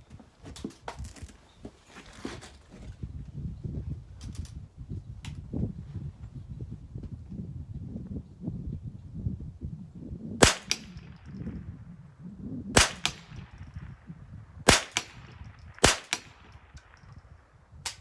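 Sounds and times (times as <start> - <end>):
rifle shots: 10.4 - 11.3, 12.8 - 13.9, 14.7 - 17.1
fainter echoing crack: 12.8 - 14.0, 14.7 - 17.1.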